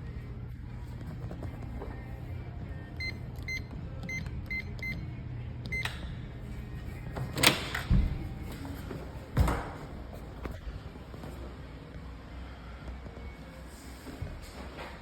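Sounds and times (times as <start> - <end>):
electronic keypad beeping: 3.0 - 5.0
door lock clunks: 7.2 - 8.2.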